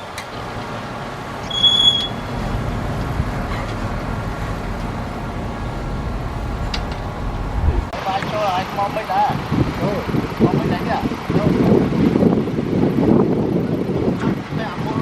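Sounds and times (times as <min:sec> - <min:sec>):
diesel engine rumbling: 0:00.0 - 0:13.0
high-pitched squeal: 0:00.3 - 0:07.9.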